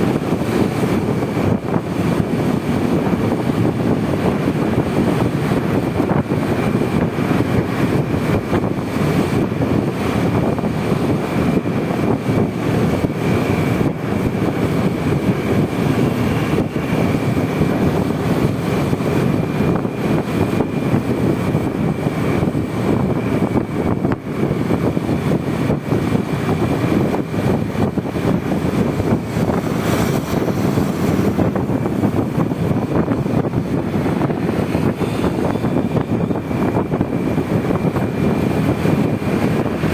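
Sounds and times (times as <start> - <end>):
road and wind noise: 0.0 - 39.9
scooter engine running: 12.1 - 32.7
faint high whine: 19.8 - 21.0.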